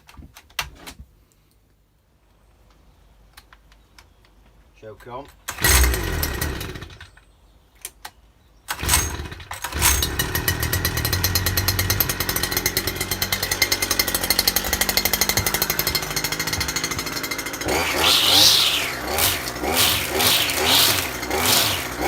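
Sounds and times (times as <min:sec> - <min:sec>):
pull cord starting engine: 0:05.4 - 0:07.2, 0:08.7 - 0:22.0
brush cutter engine running: 0:05.5 - 0:07.1, 0:08.8 - 0:22.0.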